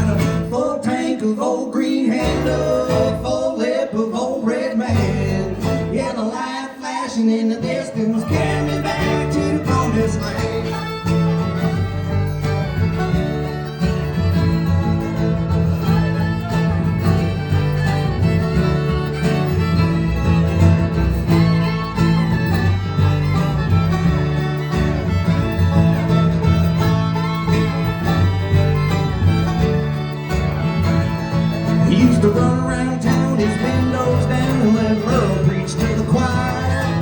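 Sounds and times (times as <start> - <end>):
fiddle: 0.0 - 0.6, 4.9 - 6.0, 8.1 - 37.0
bass line: 0.0 - 0.7, 4.9 - 6.2, 8.1 - 37.0
guitar: 0.0 - 37.0.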